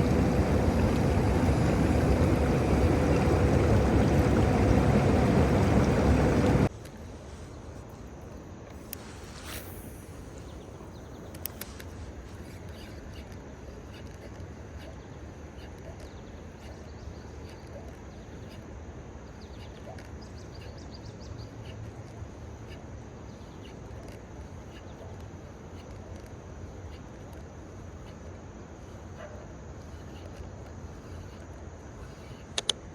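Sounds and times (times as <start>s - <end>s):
outdoor background noise: 0.0s - 32.9s
light clicks: 32.5s - 32.8s.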